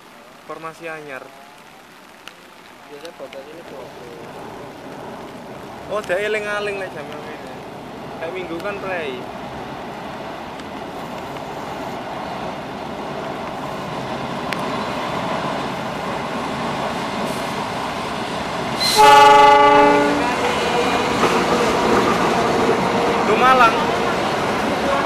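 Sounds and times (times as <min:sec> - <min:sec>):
train coaches clacking over rails: 0:13.5 - 0:25.0
locomotive horn blast: 0:18.8 - 0:21.0.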